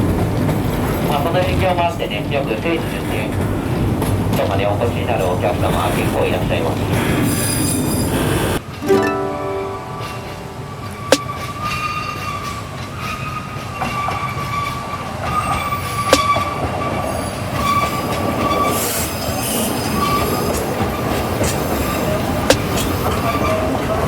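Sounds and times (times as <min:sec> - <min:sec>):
train rumbling: 0:00.0 - 0:08.6
train wheels squealing: 0:07.0 - 0:08.6, 0:11.4 - 0:22.1.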